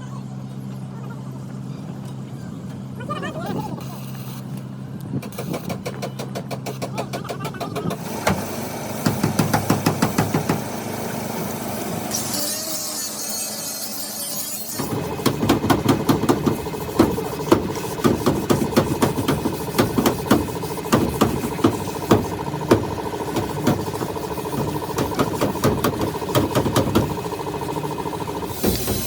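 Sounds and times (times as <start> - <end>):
machine humming: 14.6 - 29.0.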